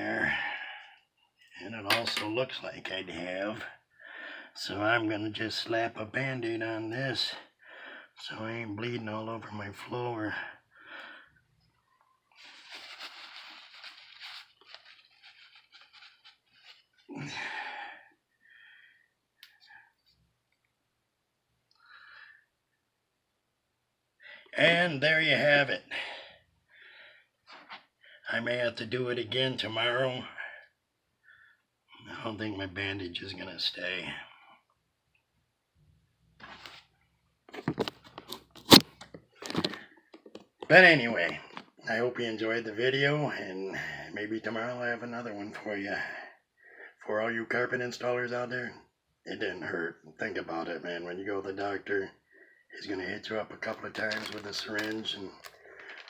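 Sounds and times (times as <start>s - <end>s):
bandage wrapper crinkling: 12.4s - 17.1s, 53.6s - 56.0s
small crackles and clicks: 53.7s - 56.0s.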